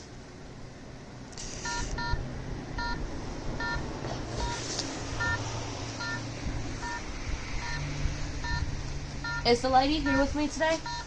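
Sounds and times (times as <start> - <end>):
distant road traffic hum: 0.0 - 11.0
short electronic beeps: 1.6 - 2.2, 5.2 - 5.4, 6.0 - 6.2, 6.8 - 7.0, 7.6 - 11.0.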